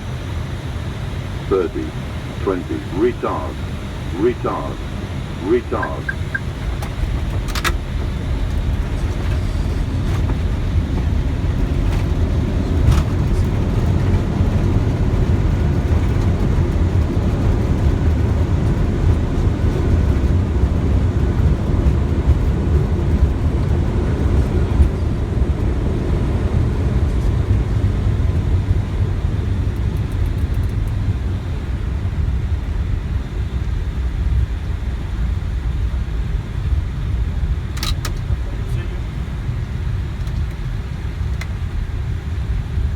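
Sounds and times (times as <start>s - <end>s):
aircraft wheels and engines rumbling: 0.0s - 42.9s.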